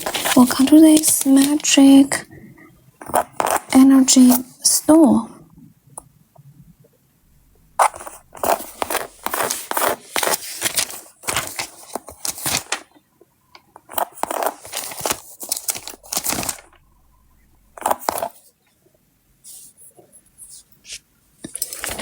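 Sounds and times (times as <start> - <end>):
sticker sheets rustling: 0.0 - 2.2, 3.0 - 4.5, 7.4 - 13.0, 13.8 - 18.5, 20.4 - 22.0.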